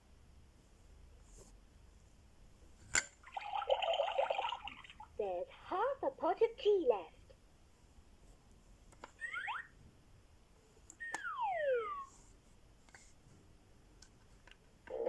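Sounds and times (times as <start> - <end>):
toy chirping sweeps: 9.2 - 9.7, 11.0 - 12.2
whistle-like tone sliding down: 9.2 - 9.7, 11.0 - 12.2
toy click: 10.9 - 12.1.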